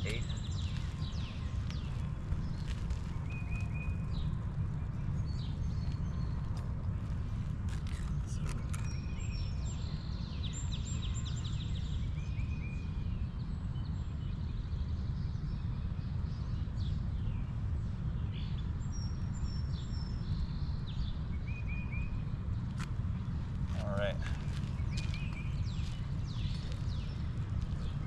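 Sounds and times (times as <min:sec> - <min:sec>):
birds chirping and trilling: 0:00.0 - 0:04.4, 0:23.3 - 0:28.0
wind rumble on microphone: 0:00.0 - 0:28.0.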